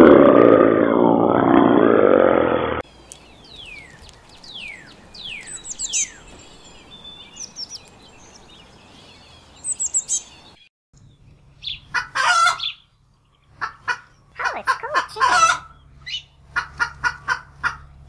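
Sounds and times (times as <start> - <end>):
bird whistling and twittering: 3.4 - 10.5
chicken calling: 11.9 - 12.8, 13.6 - 17.9.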